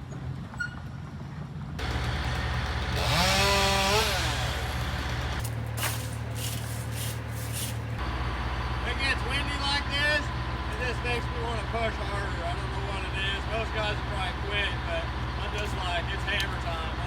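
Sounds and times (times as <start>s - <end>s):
chainsaw revving: 1.8s - 8.0s
low engine drone: 4.1s - 17.0s.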